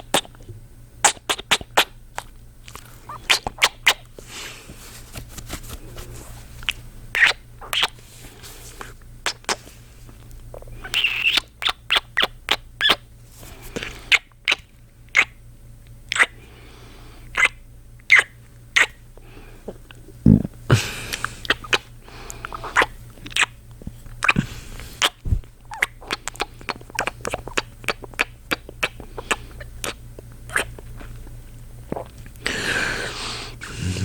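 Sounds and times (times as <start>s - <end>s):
wet kissing smacks: 0.0s - 0.3s, 1.0s - 2.3s, 3.1s - 4.0s, 7.2s - 8.0s, 9.2s - 9.6s, 10.8s - 13.0s, 13.8s - 15.3s, 16.1s - 16.3s, 21.1s - 21.8s, 22.4s - 23.5s, 24.2s - 30.8s
breathy exhales: 19.2s - 22.8s, 32.4s - 34.0s.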